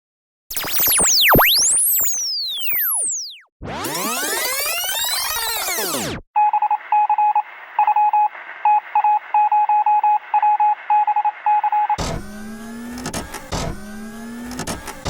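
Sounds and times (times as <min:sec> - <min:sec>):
sweeping synthesizer sound: 0:00.5 - 0:06.1
electronic beeps: 0:00.5 - 0:12.0.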